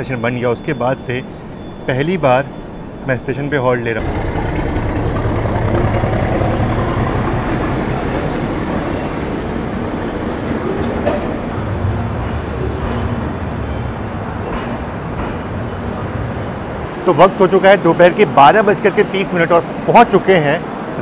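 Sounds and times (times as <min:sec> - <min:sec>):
thin high whine: 0:00.0 - 0:11.5
train rumbling to a halt: 0:00.9 - 0:16.0.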